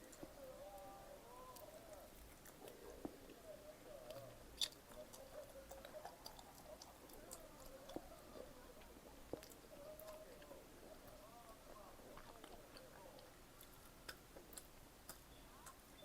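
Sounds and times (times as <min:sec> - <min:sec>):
faint chewing: 0:00.0 - 0:16.0
mouth clicks: 0:04.1 - 0:08.2.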